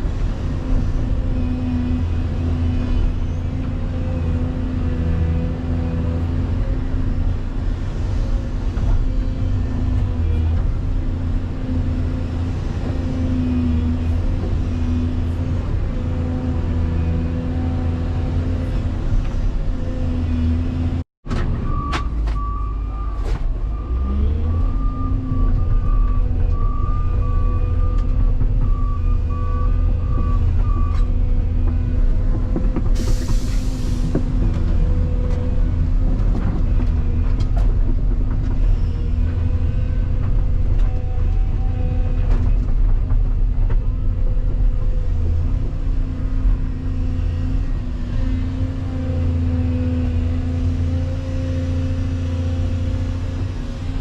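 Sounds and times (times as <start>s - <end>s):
truck reversing alarm beeping: 21.6s - 31.6s.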